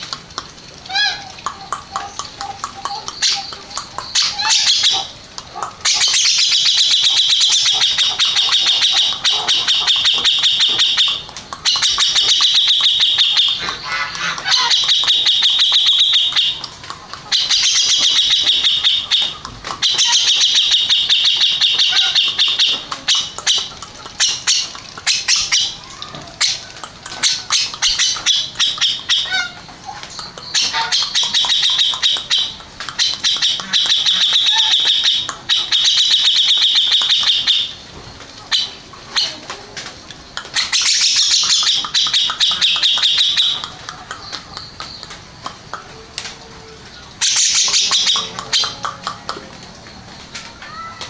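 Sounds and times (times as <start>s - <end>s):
bird singing high-pitched chatter: 0.0s - 37.9s, 40.2s - 51.0s.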